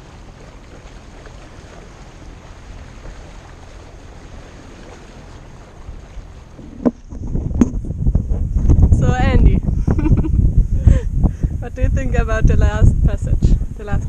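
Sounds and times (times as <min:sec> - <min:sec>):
wind and water noise: 0:00.0 - 0:14.0
wind rumbling on microphone: 0:00.0 - 0:14.0.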